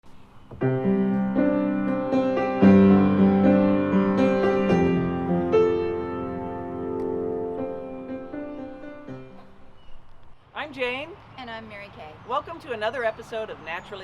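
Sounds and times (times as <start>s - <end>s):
piano playing slow chords: 0.6s - 10.0s.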